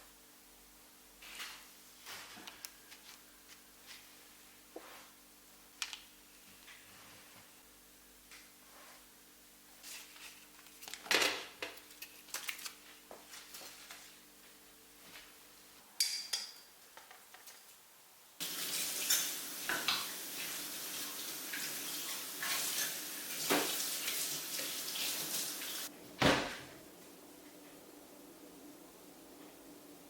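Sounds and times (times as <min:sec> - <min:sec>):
crockery clinking: 0:16.0 - 0:16.7, 0:19.0 - 0:19.9
kitchen tap running: 0:18.4 - 0:25.9
dishes clattering: 0:19.0 - 0:20.1.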